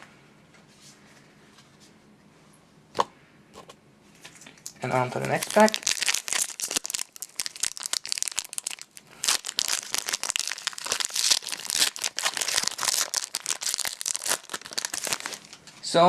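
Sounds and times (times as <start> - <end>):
foil wrapper crinkling and tearing: 4.9 - 15.6.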